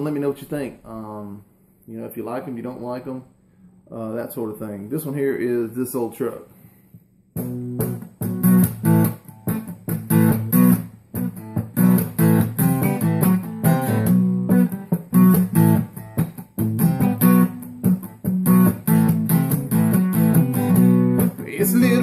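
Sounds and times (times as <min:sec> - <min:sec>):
acoustic guitar strumming: 0:07.4 - 0:22.0.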